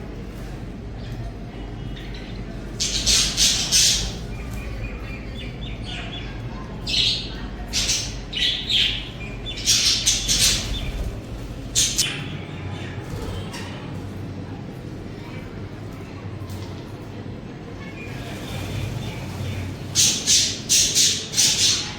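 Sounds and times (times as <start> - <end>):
warbling chatter: 0.0 - 21.9
budgerigars chirping: 2.0 - 11.1, 18.1 - 21.9.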